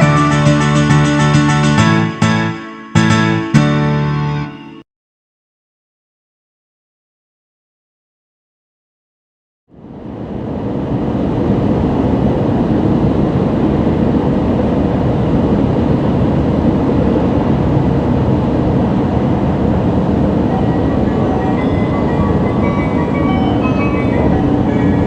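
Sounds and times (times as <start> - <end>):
train rushing rumble: 10.2 - 25.0
thin high tones: 20.4 - 25.0.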